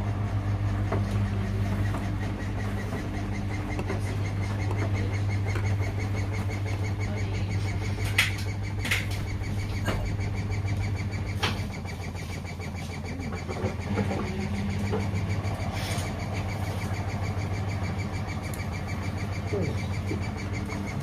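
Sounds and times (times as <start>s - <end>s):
washing machine motor hum: 0.0s - 21.0s
sharp clicks: 1.0s - 21.0s
fast even ticking: 1.2s - 21.0s.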